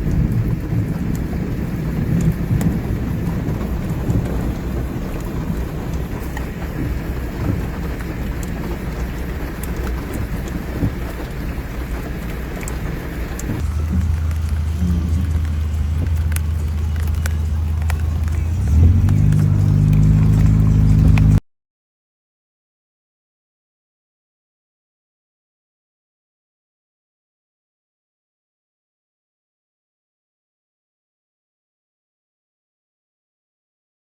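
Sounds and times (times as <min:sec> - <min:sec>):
heavy rain: 0:00.0 - 0:21.4
low engine hum: 0:00.0 - 0:21.4.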